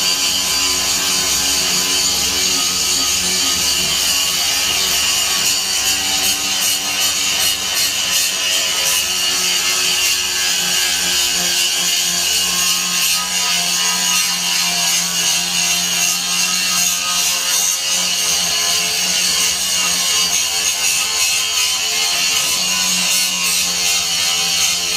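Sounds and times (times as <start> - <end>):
angle grinder grinding metal: 0.0 - 24.9.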